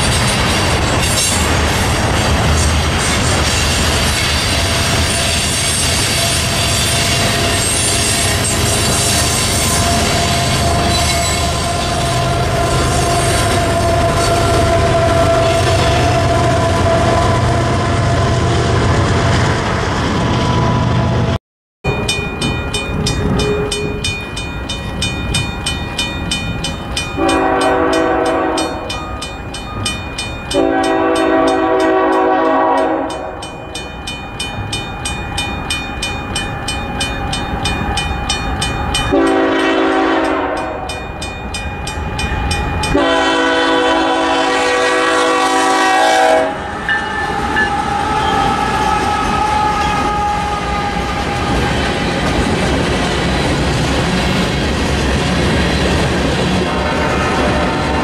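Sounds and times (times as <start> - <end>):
crossing bell ringing: 3.3 - 16.4, 21.8 - 50.1
locomotive horn blasts: 6.2 - 18.4, 27.2 - 29.0, 30.5 - 33.4, 39.1 - 40.9, 42.9 - 51.7, 56.7 - 58.0.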